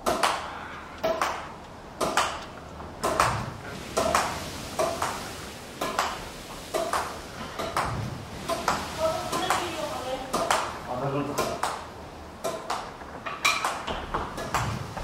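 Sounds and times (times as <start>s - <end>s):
shuttlecock hitting wall: 0.0s - 5.2s.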